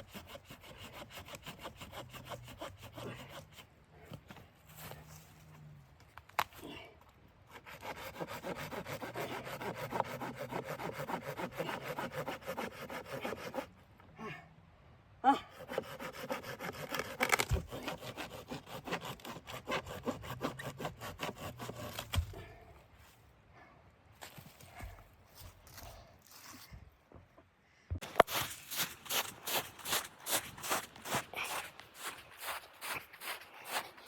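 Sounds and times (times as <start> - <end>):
hand saw cutting wood: 0.0 - 3.7, 7.5 - 13.7, 15.5 - 22.4.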